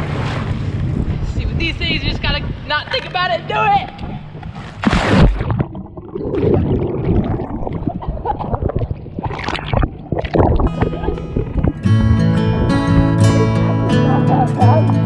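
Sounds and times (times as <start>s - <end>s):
water splashing and sloshing: 3.9s - 15.0s
person splashing into pool: 4.6s - 11.8s.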